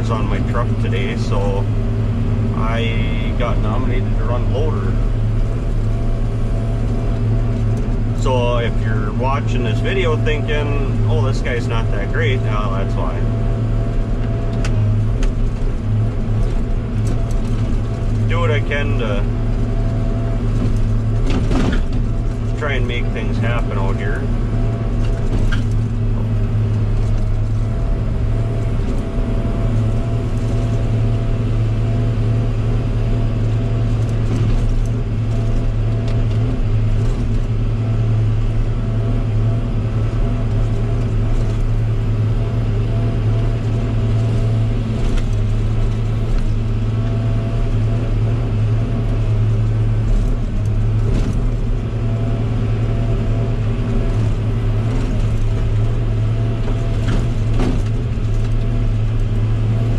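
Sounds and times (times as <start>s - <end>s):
log loader engine drone: 0.0s - 59.9s
machinery clicks and knocks: 20.5s - 24.0s, 56.6s - 58.8s.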